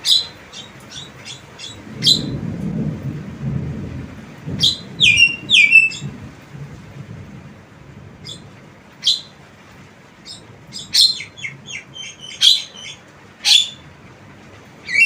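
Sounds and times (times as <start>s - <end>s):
loud bird cries: 0.0s - 2.4s, 4.6s - 6.1s, 9.0s - 9.4s, 10.2s - 14.0s
bird squeaky chirps and whistles: 4.6s - 6.1s, 8.2s - 8.4s, 9.0s - 9.3s, 10.3s - 13.8s.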